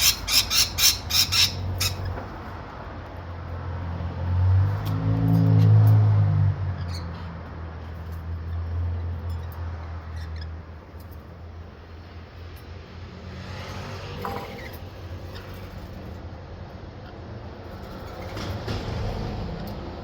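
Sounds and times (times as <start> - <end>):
birds squeaking faintly: 0.0 - 2.5, 6.6 - 12.2, 14.2 - 16.2.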